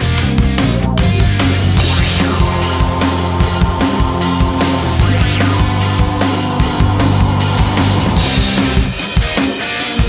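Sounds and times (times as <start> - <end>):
heavy distorted rock music: 0.0 - 10.0.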